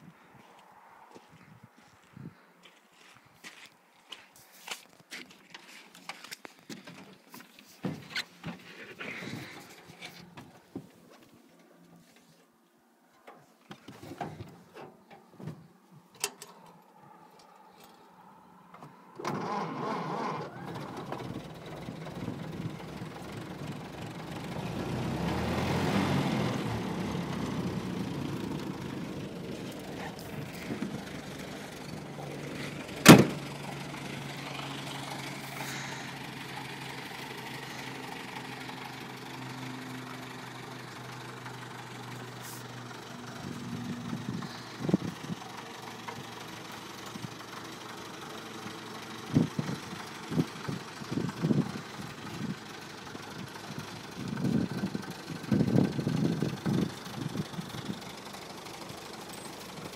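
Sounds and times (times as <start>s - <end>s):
car engine starting and idling: 14.0s - 59.9s.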